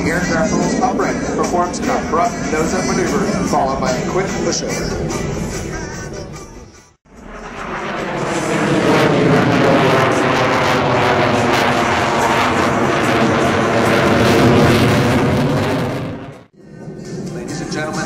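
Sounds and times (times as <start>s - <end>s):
jet engine roar: 0.0s - 18.0s.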